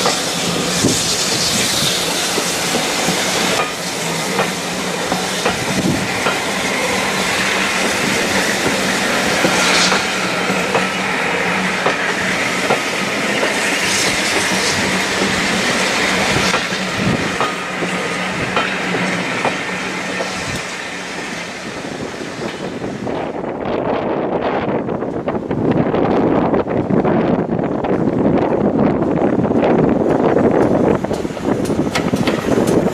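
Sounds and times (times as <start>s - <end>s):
train wheels rolling on rails: 0.0s - 32.9s
wheels clicking over rail joints: 2.3s - 6.6s, 29.5s - 32.9s.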